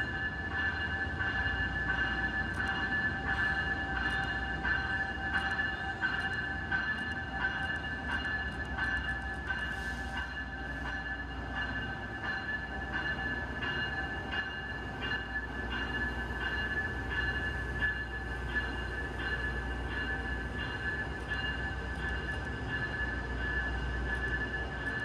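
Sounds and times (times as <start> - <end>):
train bell ringing: 0.0 - 25.0.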